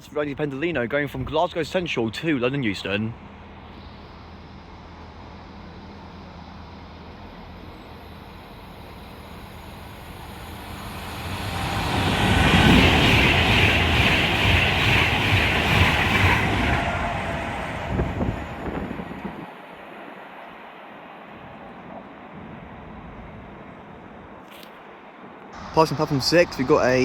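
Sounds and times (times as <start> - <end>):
electric train passing at speed: 2.2 - 27.0.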